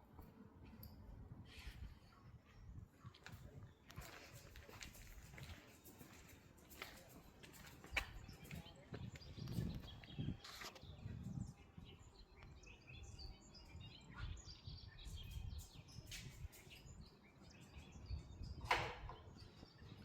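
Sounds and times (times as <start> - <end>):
faint bird chirps: 8.0 - 20.0.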